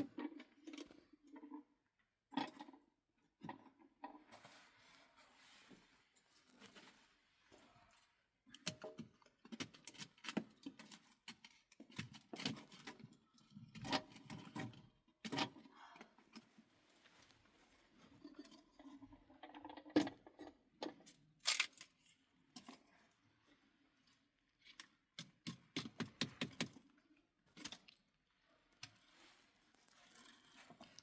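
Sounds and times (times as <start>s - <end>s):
small objects clicking and clattering: 18.5s - 22.8s.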